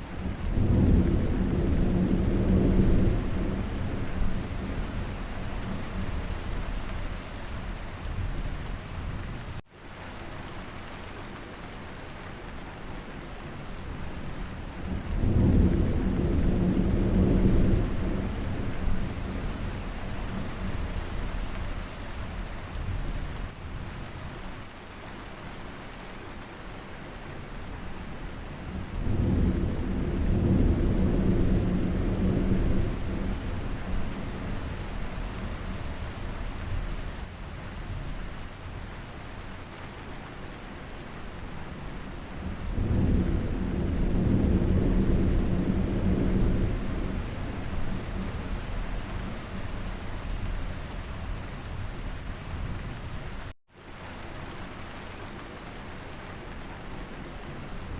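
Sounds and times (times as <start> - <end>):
steady rain: 0.0 - 57.9
thunder rumbling: 0.4 - 8.7, 14.9 - 23.1, 28.9 - 37.3, 42.4 - 53.5.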